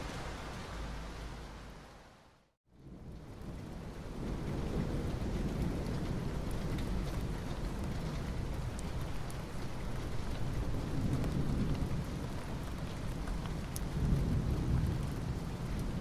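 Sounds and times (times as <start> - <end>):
rain on asphalt: 0.0 - 16.0.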